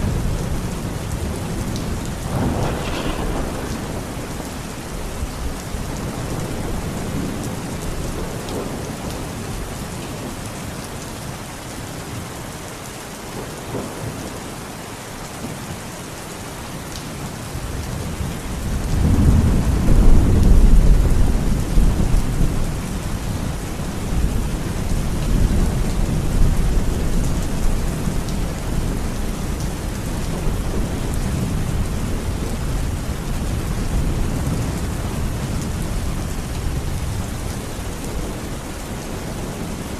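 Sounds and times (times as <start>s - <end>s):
deep rumble of thunder: 0.0s - 9.7s, 17.6s - 38.6s
steady rain falling: 0.0s - 39.9s.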